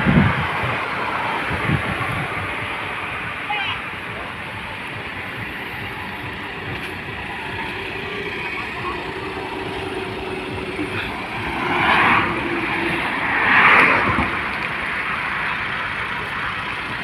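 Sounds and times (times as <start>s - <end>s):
road vehicle noise: 0.0s - 17.0s
vehicles passing close by: 0.0s - 17.0s.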